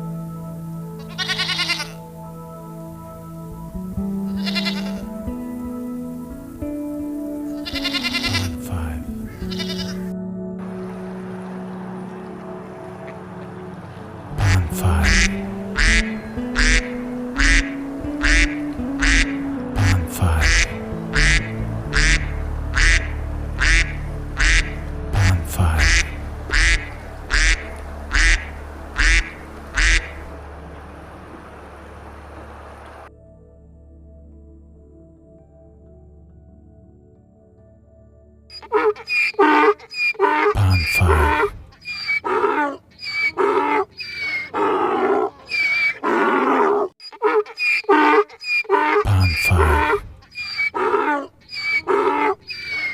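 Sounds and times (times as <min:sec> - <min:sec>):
soft background music: 0:00.0 - 0:44.0, 0:49.1 - 0:51.2
bird harsh calls: 0:14.4 - 0:30.3, 0:38.5 - 0:52.9.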